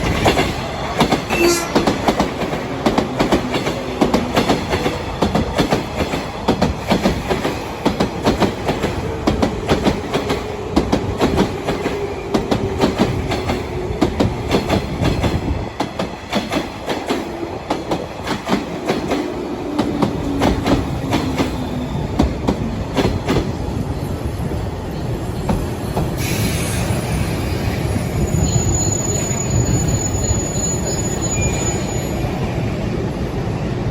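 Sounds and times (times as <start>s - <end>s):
train wheels clattering over rail joints: 0.0s - 23.7s
hiss: 26.0s - 27.8s
thin high squeal: 28.2s - 32.4s.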